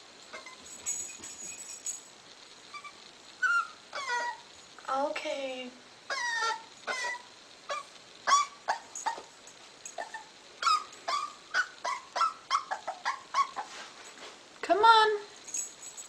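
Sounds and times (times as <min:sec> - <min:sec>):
puppy whimpering and yelping: 0:00.3 - 0:00.7, 0:02.7 - 0:04.5, 0:06.1 - 0:09.3, 0:10.0 - 0:13.8.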